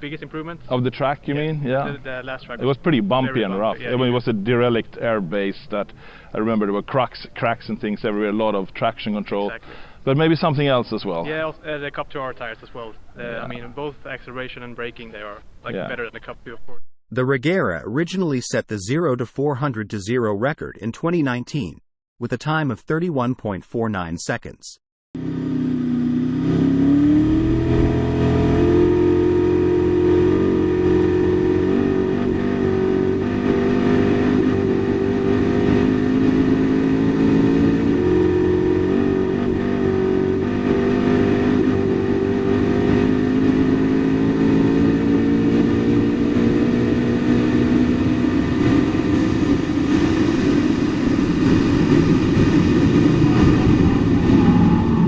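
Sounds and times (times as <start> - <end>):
car engine running hard: 25.2 - 55.0.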